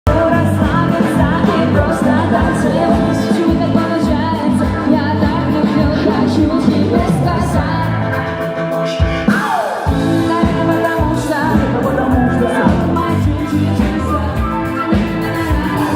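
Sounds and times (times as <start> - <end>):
band playing pop song: 0.0 - 15.9
person singing: 0.0 - 15.9
steady drum beat: 0.1 - 15.9.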